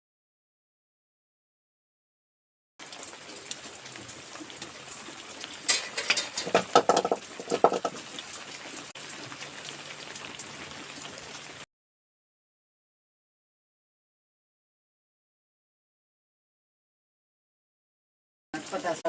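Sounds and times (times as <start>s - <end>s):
heavy rain falling: 2.8s - 11.6s, 18.6s - 19.0s
knocks and clatters: 5.7s - 8.0s.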